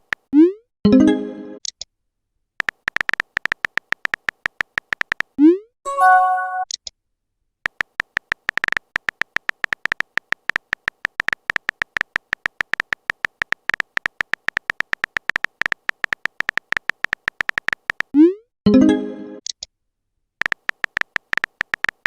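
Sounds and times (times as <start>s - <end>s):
phone keyboard typing clicks: 0.0s - 0.3s, 2.6s - 5.4s, 7.6s - 18.2s, 20.4s - 22.0s.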